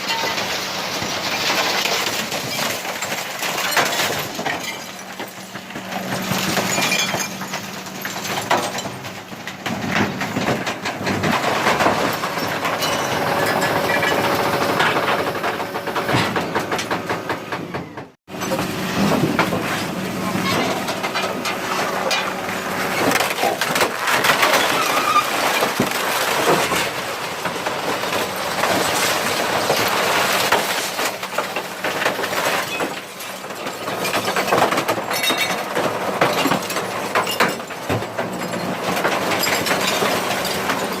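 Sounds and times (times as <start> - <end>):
compactor crushing furniture: 0.0 - 41.0
truck engine and hydraulics hum: 0.1 - 41.0.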